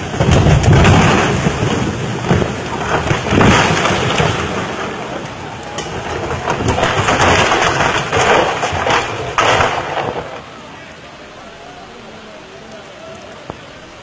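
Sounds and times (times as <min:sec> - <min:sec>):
heavy rain: 0:00.0 - 0:14.0
rushing floodwater: 0:00.0 - 0:14.0.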